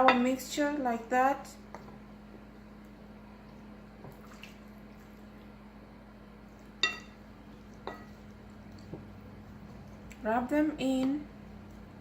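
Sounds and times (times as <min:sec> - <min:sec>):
faint steady hum: 0:00.0 - 0:12.0
mixing bowl clinking: 0:06.8 - 0:09.1.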